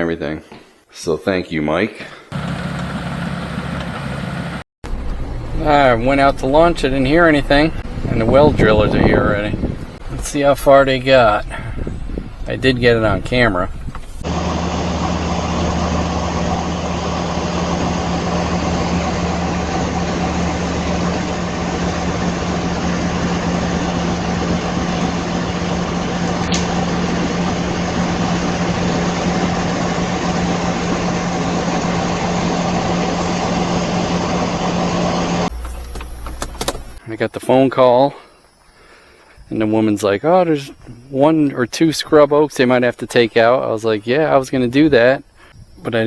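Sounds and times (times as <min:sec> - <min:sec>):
diesel engine droning: 0:02.3 - 0:37.6.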